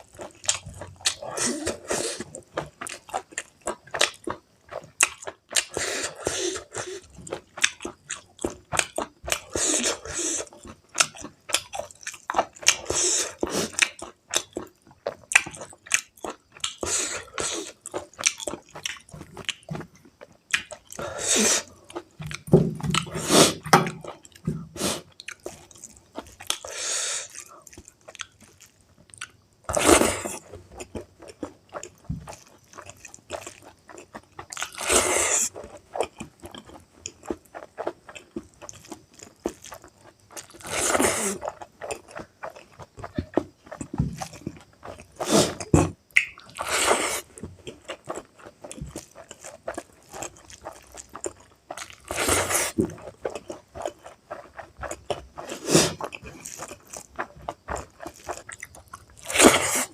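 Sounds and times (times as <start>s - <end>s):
chewing mouth clicks: 30.8s - 59.9s.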